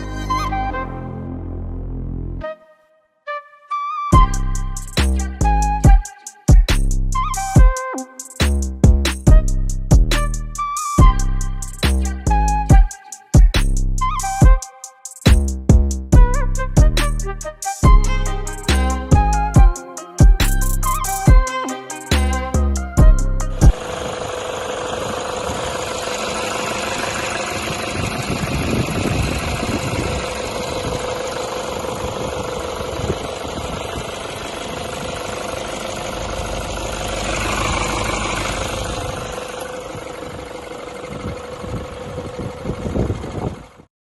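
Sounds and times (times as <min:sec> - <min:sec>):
diesel engine idling: 0:17.8 - 0:19.6, 0:20.3 - 0:43.9.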